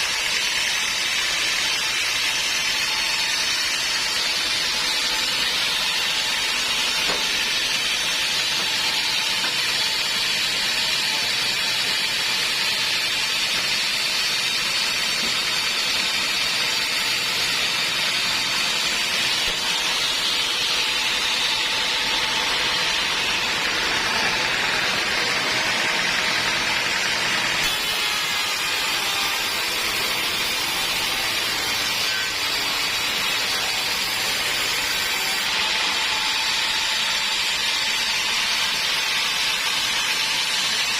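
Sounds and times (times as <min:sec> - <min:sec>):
sawmill blade cutting wood: 0:00.0 - 0:40.9.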